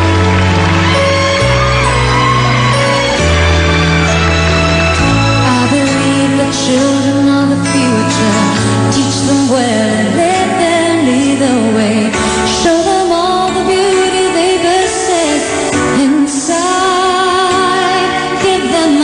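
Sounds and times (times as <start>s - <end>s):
live pop band: 0.0s - 19.0s
woman singing: 5.4s - 19.0s.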